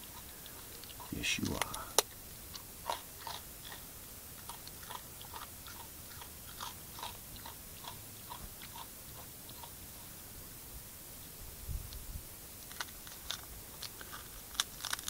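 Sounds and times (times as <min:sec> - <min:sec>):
animal crunching a biscuit: 0:00.0 - 0:10.1, 0:12.6 - 0:15.0.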